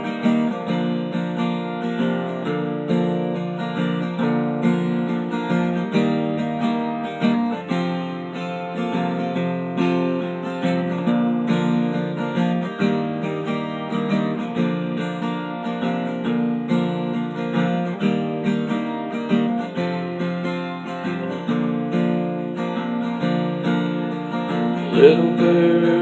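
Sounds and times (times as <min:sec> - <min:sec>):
acoustic guitar strumming: 0:00.0 - 0:26.0
person's voice: 0:24.9 - 0:26.0.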